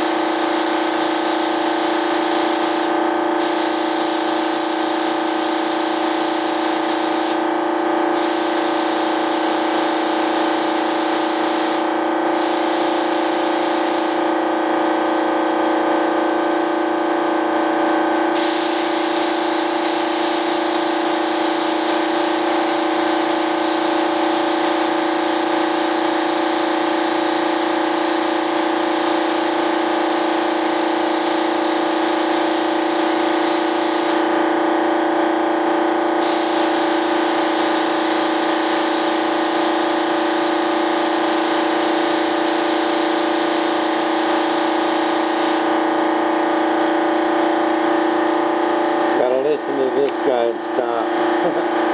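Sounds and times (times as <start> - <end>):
spray gun hissing: 0.0 - 7.4, 8.1 - 14.3, 18.3 - 34.3, 36.2 - 45.7
air supply machine hum: 0.0 - 51.9.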